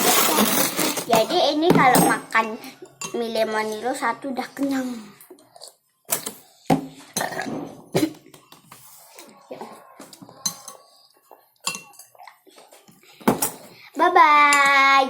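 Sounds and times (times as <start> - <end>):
spoon clinking against bowl: 10.4 - 11.0, 11.6 - 12.2.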